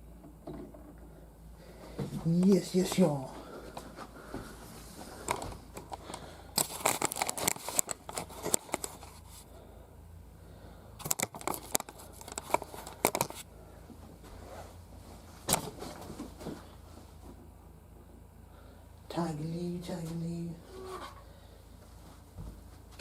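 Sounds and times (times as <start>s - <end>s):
plastic crinkling and clicking: 5.2s - 9.2s, 11.0s - 13.4s.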